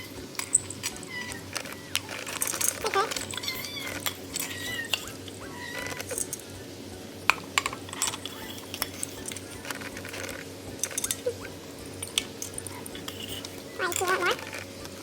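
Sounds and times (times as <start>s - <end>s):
cats eating from bowls: 0.0s - 6.6s, 7.2s - 15.0s
high whistle-like tones: 0.0s - 7.2s.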